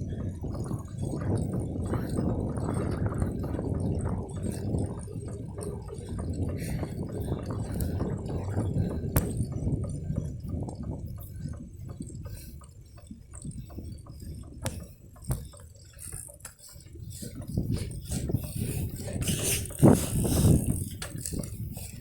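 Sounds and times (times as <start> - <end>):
low rumble: 0.0 - 15.1
wind buffeting microphone: 0.0 - 15.6, 16.2 - 22.0
bicycle clicks and rattles: 0.0 - 22.0.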